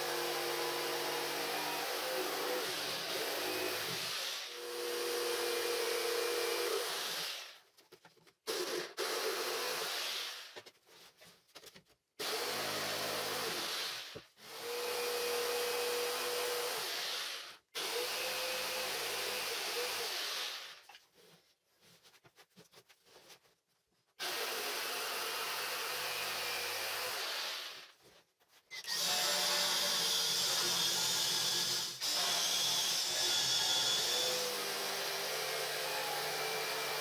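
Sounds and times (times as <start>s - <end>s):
power tool whining: 28.7s - 37.0s.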